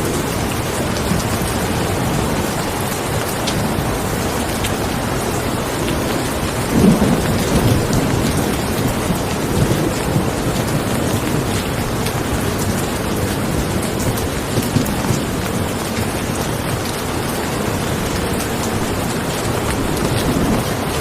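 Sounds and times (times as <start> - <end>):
heavy rain falling: 0.0 - 21.0
low rumbles of thunder: 0.0 - 21.0.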